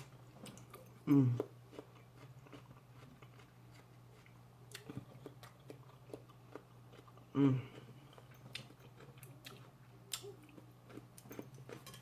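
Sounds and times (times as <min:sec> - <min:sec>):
chewing food: 0:00.0 - 0:12.0
faint low hum: 0:00.0 - 0:12.0
person humming: 0:01.0 - 0:01.4, 0:07.3 - 0:07.8.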